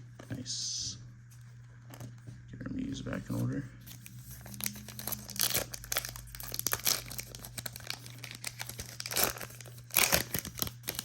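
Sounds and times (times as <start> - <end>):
foil wrapper crinkling and tearing: 3.9 - 11.0.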